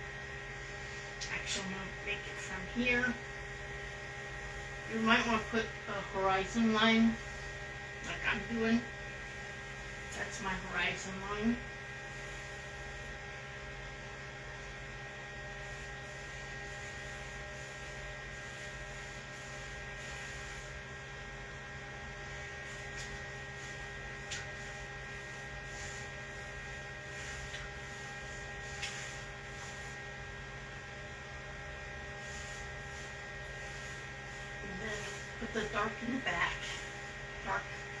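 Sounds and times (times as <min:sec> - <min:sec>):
steady electrical hum: 0:00.0 - 0:38.0.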